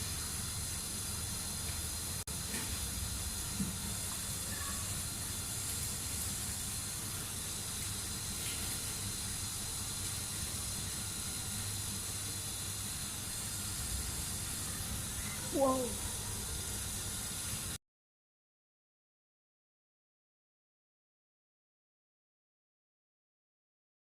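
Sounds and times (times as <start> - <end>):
small motor hiss and hum: 0.0 - 17.8.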